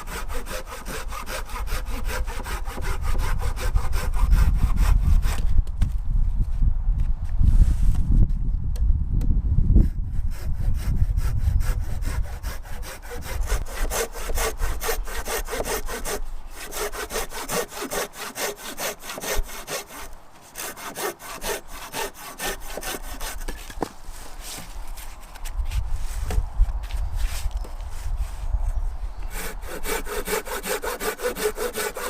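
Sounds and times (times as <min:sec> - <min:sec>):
hand saw cutting wood: 0:00.0 - 0:05.6, 0:09.8 - 0:26.4, 0:29.3 - 0:32.0.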